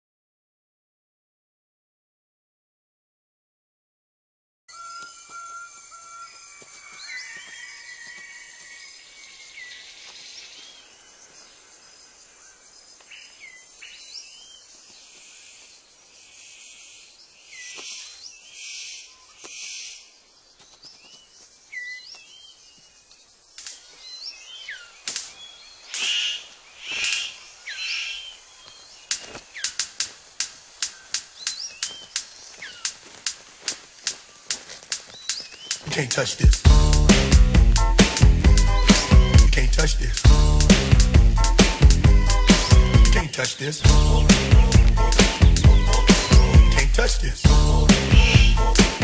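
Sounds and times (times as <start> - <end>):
birds chirping: 4.7 - 49.0
sharp snapping clicks: 25.0 - 25.3, 29.1 - 35.9
rustling: 28.6 - 35.9.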